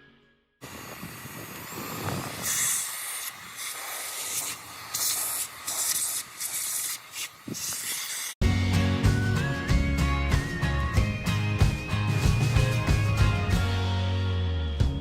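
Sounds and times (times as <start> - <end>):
stick vacuum cleaner running: 0.6 - 8.3.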